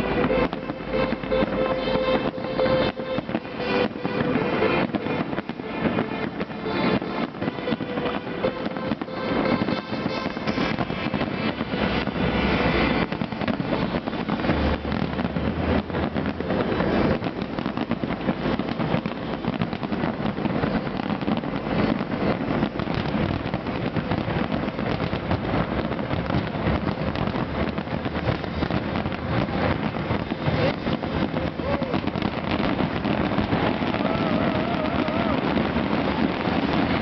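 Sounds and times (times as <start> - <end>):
fireworks bursting and crackling: 0.0 - 37.0.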